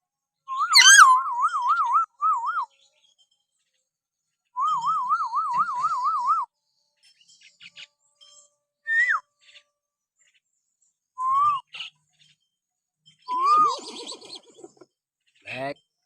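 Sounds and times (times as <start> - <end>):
myna bird whistling: 0.6 - 1.2.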